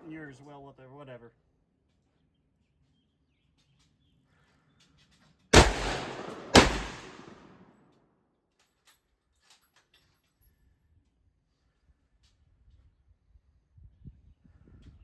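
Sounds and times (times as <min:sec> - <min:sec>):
rifle shots with long echo: 0:05.6 - 0:07.6.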